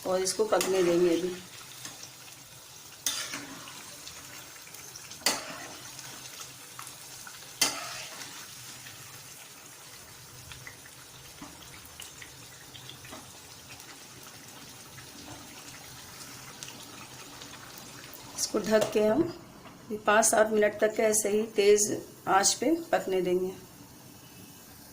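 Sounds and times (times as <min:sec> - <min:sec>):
food sizzling in a pot: 0:00.0 - 0:24.9.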